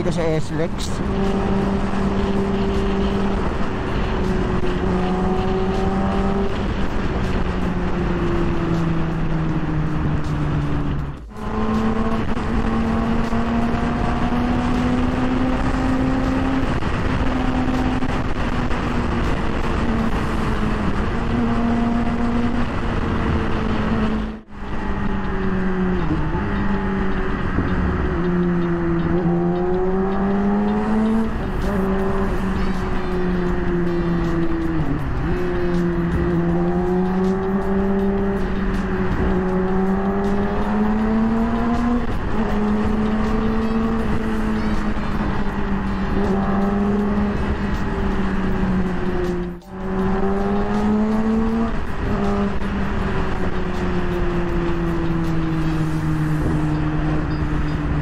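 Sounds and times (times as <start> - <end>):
motorcycle engine at speed: 0.0 - 58.0.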